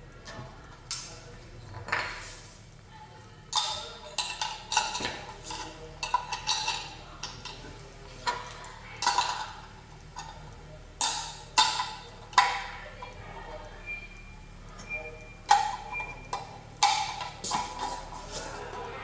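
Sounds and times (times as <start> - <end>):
kitchen items clinking together: 3.5 - 13.2.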